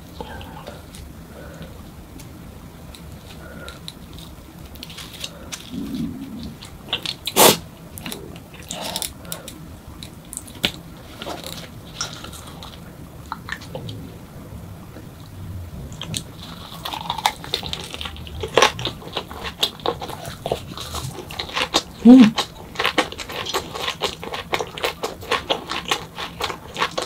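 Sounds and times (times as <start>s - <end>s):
chewing and wet mouth sounds: 0.0s - 14.1s, 15.9s - 27.0s
crisp clicks and smacks: 2.2s - 13.8s.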